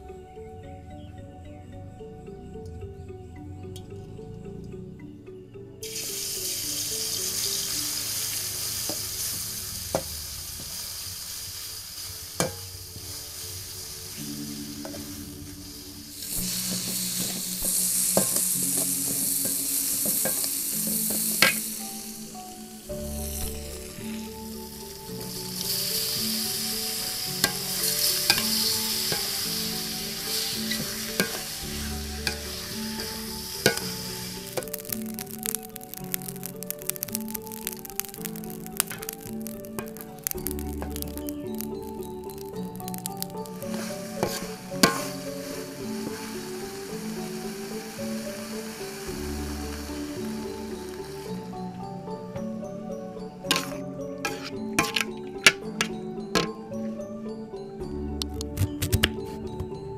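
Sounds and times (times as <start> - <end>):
soft background music: 0.0 - 59.9
food sizzling in a wok: 5.8 - 56.7
metal spatula scraping a wok: 43.7 - 46.3, 53.5 - 56.5.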